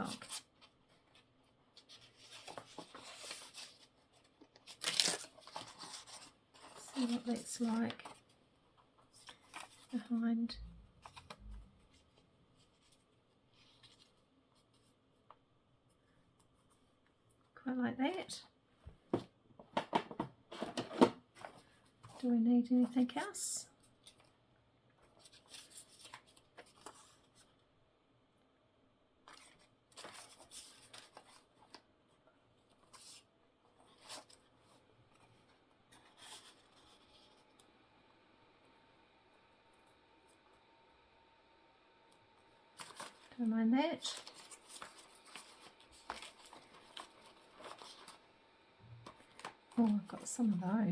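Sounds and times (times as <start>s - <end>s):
paper scraps rustling: 1.8s - 8.2s, 42.8s - 43.4s, 44.0s - 48.2s.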